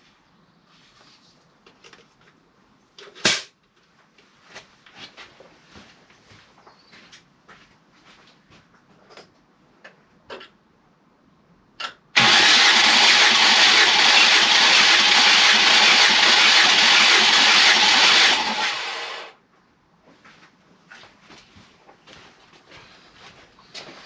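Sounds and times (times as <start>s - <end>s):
engine cranking on starter motor: 12.2s - 19.3s.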